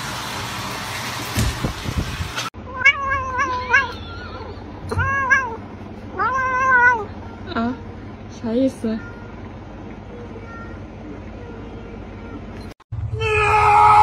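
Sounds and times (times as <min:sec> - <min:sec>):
cat meowing: 0:02.6 - 0:07.2.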